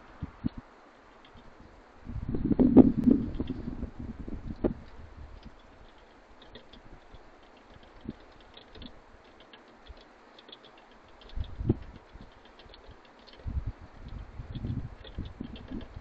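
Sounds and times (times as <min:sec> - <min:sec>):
birds pecking at feeder: 0:00.4 - 0:01.7, 0:04.7 - 0:16.0.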